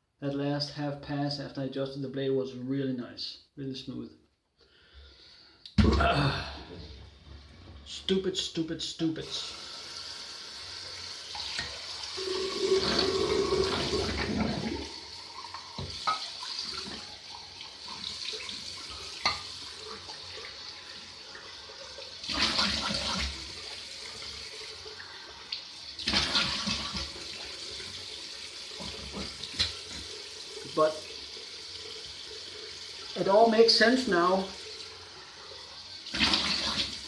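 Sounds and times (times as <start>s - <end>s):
tap running into sink: 15.7s - 17.0s.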